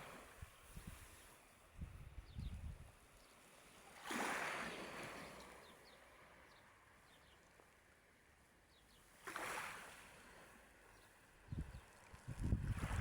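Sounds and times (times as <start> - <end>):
small waves washing on shore: 0.0 - 1.7, 3.4 - 6.4, 9.1 - 11.4, 12.0 - 13.0.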